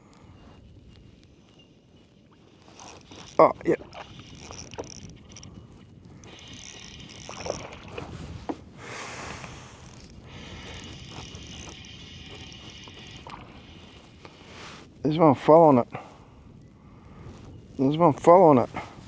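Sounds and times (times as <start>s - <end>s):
fishing reel whirring: 2.6s - 8.1s, 8.8s - 14.0s.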